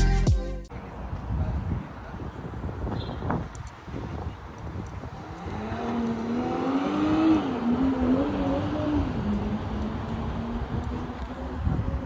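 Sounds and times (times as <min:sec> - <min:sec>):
car engine revving: 0:05.2 - 0:11.6.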